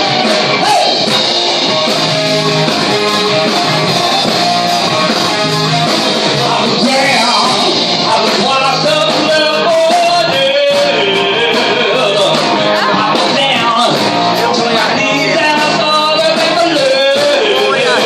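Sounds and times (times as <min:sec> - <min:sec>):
live rock band playing: 0:00.0 - 0:18.0
person singing: 0:06.2 - 0:18.0.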